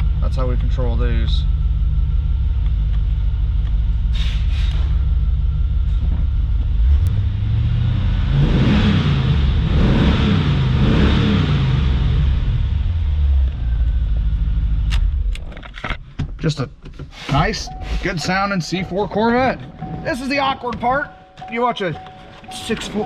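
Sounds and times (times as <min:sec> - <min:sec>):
car engine idling and revving: 0:00.0 - 0:16.6, 0:21.4 - 0:23.0.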